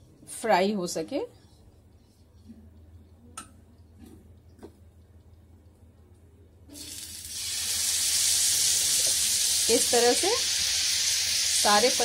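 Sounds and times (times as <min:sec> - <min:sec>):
food sizzling on a hot pan: 0:06.8 - 0:12.0.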